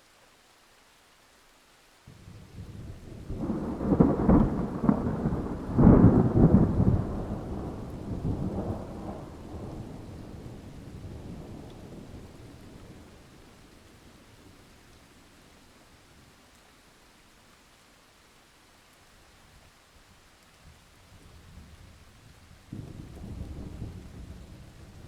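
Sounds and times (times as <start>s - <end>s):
thunder rolling and cracking: 2.8s - 12.0s.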